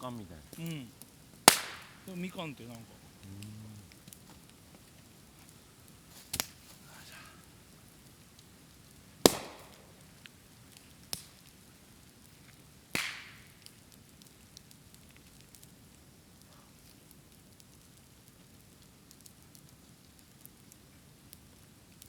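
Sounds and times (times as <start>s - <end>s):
faint fire crackling: 0.0s - 22.0s
bamboo bursting with loud bangs: 1.4s - 2.2s, 6.2s - 6.6s, 9.2s - 10.1s, 12.9s - 13.5s.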